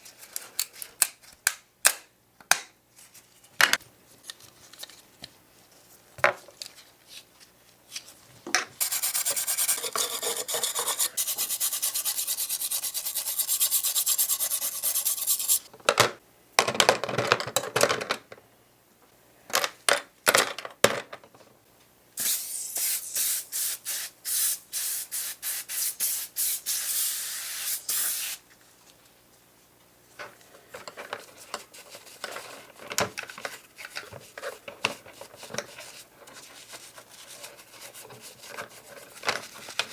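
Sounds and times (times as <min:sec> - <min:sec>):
hand sanding in rasping strokes: 0:08.8 - 0:15.7.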